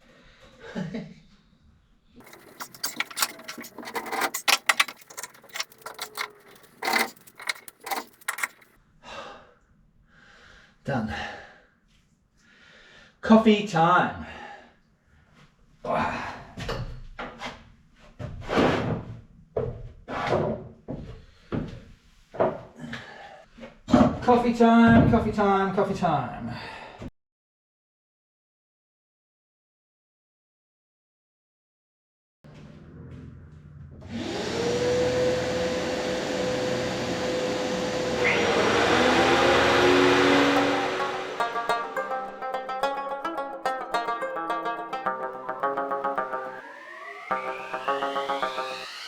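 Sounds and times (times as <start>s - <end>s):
small electric motor whining: 34.2s - 41.7s, 45.0s - 49.0s.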